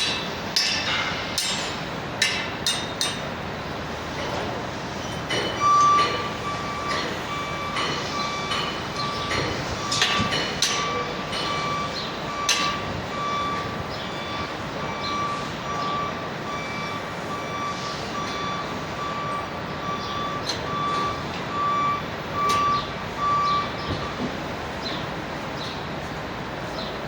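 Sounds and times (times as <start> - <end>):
reversing alarm beeping: 4.2 - 24.4.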